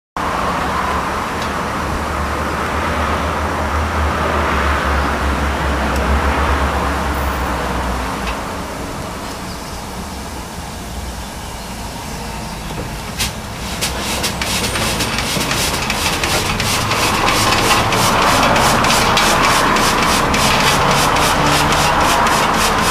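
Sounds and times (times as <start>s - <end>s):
air-driven engine rushing: 1.9s - 22.9s
engine mechanical clatter: 11.9s - 22.9s.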